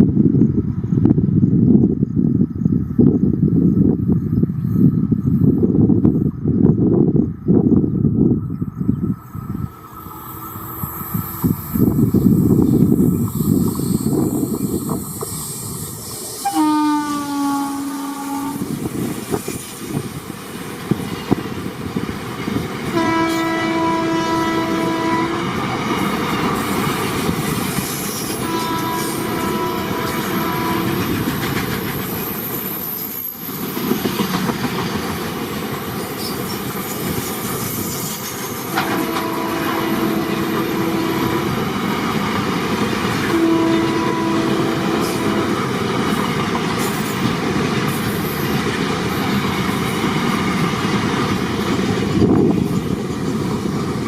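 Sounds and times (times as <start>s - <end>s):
train rumbling on rails: 0.0s - 54.0s
locomotive horn blasts: 16.4s - 18.7s, 22.9s - 25.6s, 28.3s - 31.3s, 38.7s - 41.8s, 43.2s - 45.8s.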